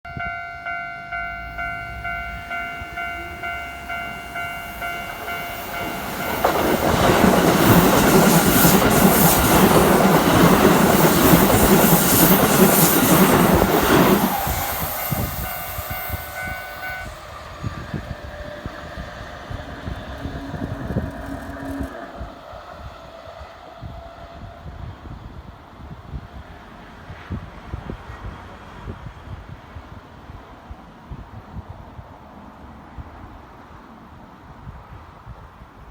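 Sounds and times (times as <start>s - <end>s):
train rushing past: 0.2s - 29.2s
level crossing alarm: 15.0s - 22.4s.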